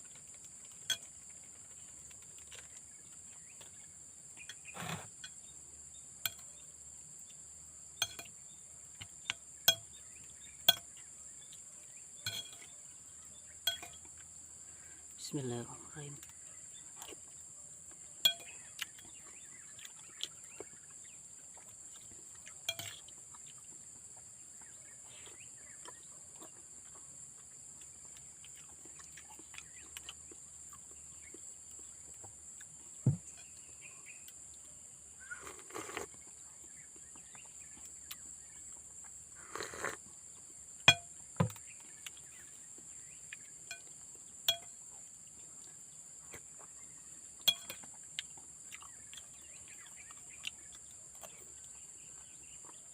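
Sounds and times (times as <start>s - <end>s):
insects droning: 0.0s - 52.9s
sharp clinks: 8.0s - 8.4s, 12.2s - 12.8s, 13.6s - 14.1s, 18.2s - 18.7s, 44.5s - 44.8s, 47.5s - 47.9s.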